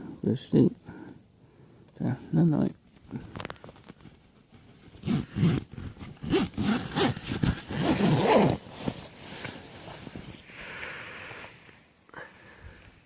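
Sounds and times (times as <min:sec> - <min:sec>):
fabric rustling: 0:03.0 - 0:10.5
zip being pulled: 0:05.0 - 0:09.5.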